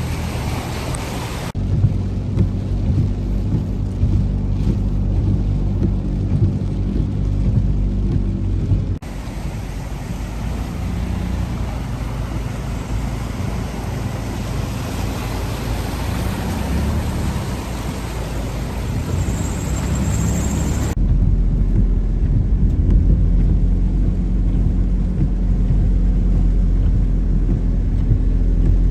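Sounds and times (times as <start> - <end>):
heavy rain hissing: 0.0 - 21.0
low engine rumble: 0.0 - 28.9
vehicles driving through floodwater: 0.0 - 28.9.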